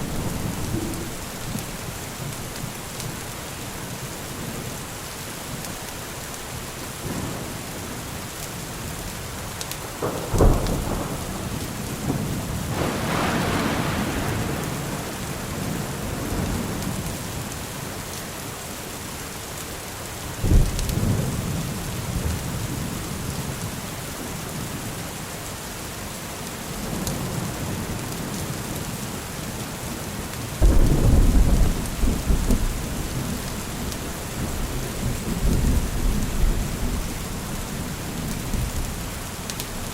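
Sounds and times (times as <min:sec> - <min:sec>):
thunder claps and rumble: 0:00.0 - 0:03.3, 0:06.9 - 0:17.7, 0:20.4 - 0:23.9, 0:30.5 - 0:39.9
steady rain falling: 0:00.0 - 0:39.9.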